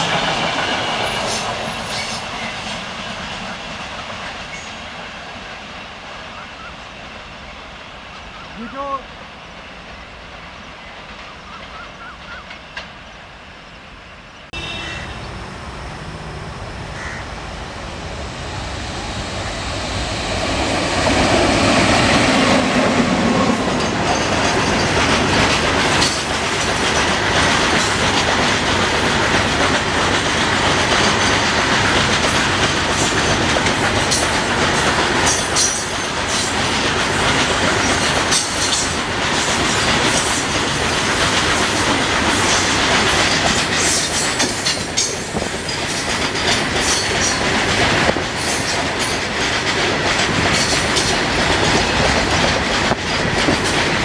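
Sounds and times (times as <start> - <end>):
freight train passing: 0.0 - 54.0
wagon wheels clattering over rails: 22.1 - 54.0.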